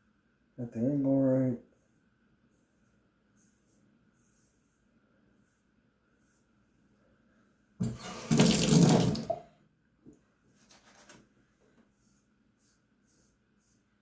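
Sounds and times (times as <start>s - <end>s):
sink tap running: 7.8s - 9.4s.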